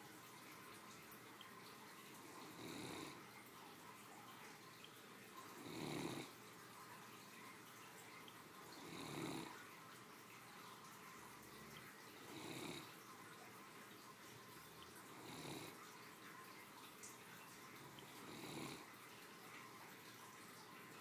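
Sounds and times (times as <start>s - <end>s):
dog snoring: 2.2s - 3.2s, 5.5s - 6.4s, 8.8s - 9.6s, 12.2s - 12.9s, 15.1s - 15.8s, 18.0s - 18.9s.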